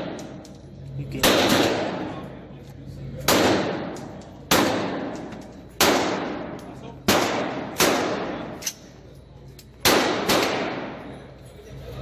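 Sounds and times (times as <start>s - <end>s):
gunshots with echoing decay: 0.0s - 0.4s, 1.2s - 2.2s, 3.2s - 8.8s, 9.8s - 11.1s.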